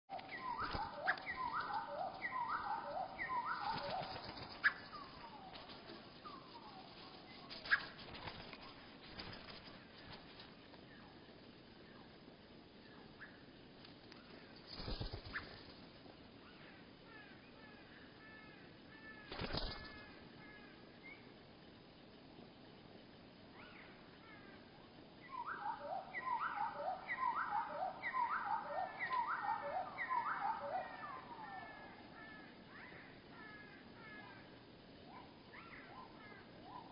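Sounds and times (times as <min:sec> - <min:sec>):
slowed bird calls: 0:00.1 - 0:11.3, 0:23.5 - 0:36.9.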